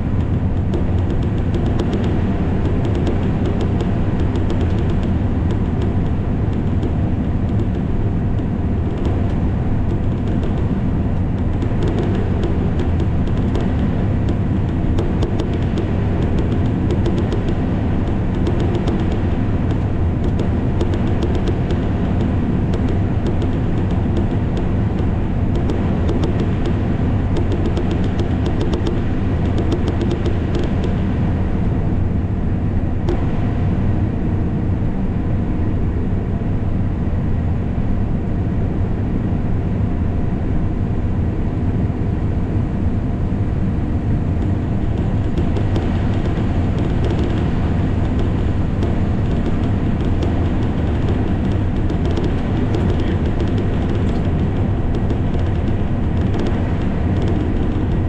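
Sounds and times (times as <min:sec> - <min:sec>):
rapid clicking: 0:00.0 - 0:31.2, 0:33.0 - 0:33.5, 0:44.4 - 0:58.0
combine harvester running: 0:00.0 - 0:32.2, 0:43.1 - 0:58.0.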